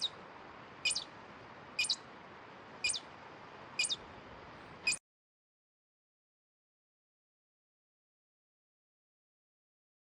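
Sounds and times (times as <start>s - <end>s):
short high-pitched chirp: 0.9s - 1.1s, 1.8s - 2.0s, 2.8s - 3.0s, 3.8s - 4.0s.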